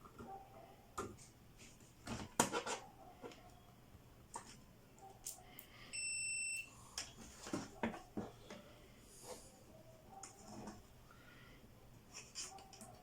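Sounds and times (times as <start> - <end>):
multimeter continuity beep: 5.9 - 6.7.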